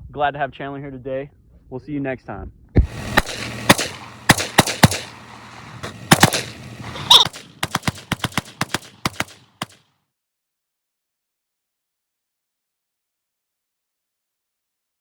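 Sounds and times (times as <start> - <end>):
gunshots: 2.8 - 9.8.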